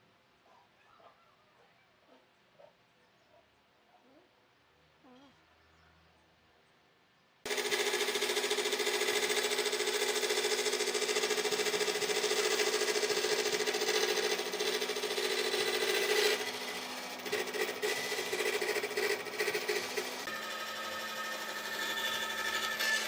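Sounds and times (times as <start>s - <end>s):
electric power tool running: 7.5s - 23.0s.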